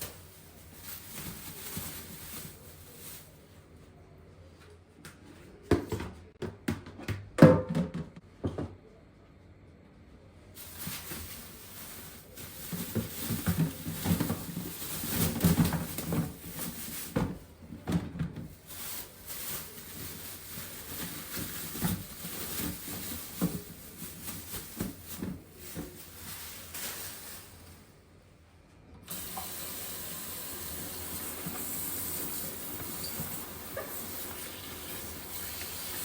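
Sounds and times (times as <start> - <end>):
rustling: 0.0 - 3.8, 10.6 - 28.0, 30.8 - 36.0
kitchen knocks and taps: 5.7 - 8.8.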